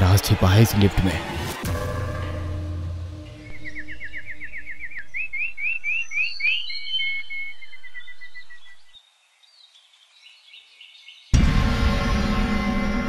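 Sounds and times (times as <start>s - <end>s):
songbird singing: 3.4s - 11.4s.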